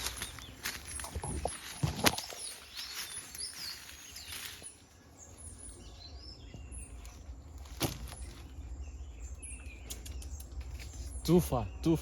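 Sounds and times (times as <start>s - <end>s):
birds chirping: 0.0s - 12.0s
forest ambience: 0.0s - 12.0s.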